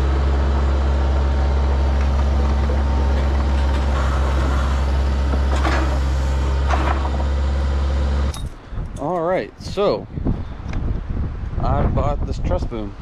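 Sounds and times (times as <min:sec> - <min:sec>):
vehicle engine idling: 0:00.0 - 0:08.8.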